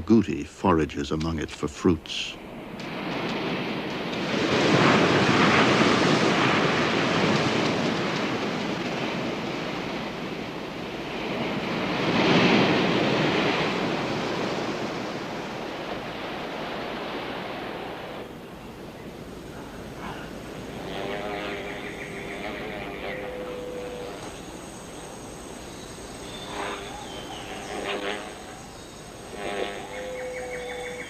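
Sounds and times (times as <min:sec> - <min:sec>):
surf washing onto beach: 0:02.6 - 0:21.0.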